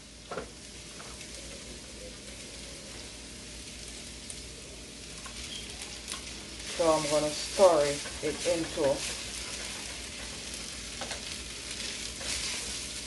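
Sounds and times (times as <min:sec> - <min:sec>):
rice and onion sizzling in oil: 0:00.0 - 0:13.0.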